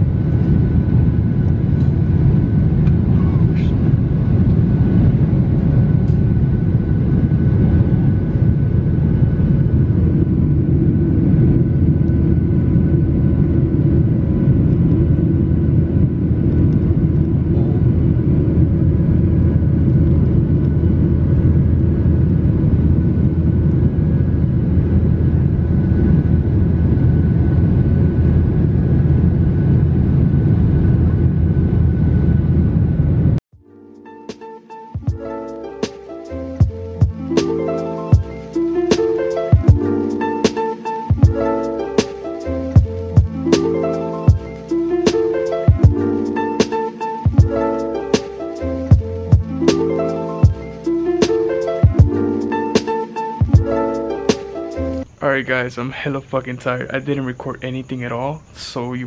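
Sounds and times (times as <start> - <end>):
airliner cabin rumble: 0.0 - 33.4.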